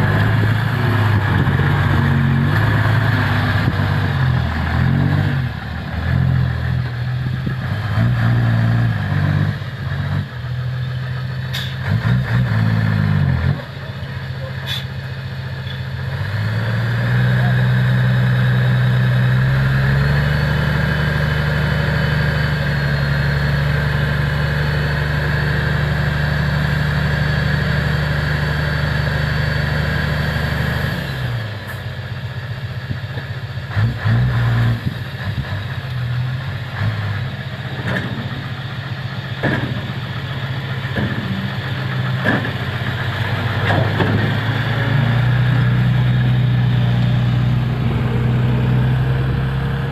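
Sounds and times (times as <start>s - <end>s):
diesel truck engine running: 0.0s - 49.9s
sharp knocks and clanks: 39.4s - 40.0s, 40.9s - 42.7s, 43.6s - 44.5s.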